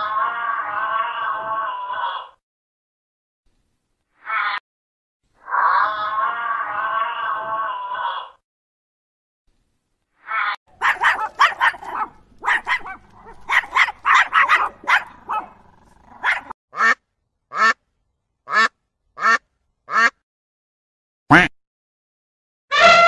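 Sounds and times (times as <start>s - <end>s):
waterfowl quacking: 16.8s - 17.8s, 18.5s - 20.2s.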